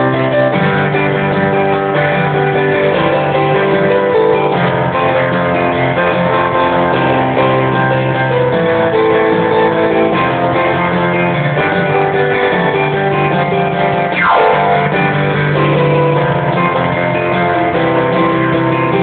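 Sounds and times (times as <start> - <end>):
guitar playing jazzy rock riff: 0.0 - 19.0.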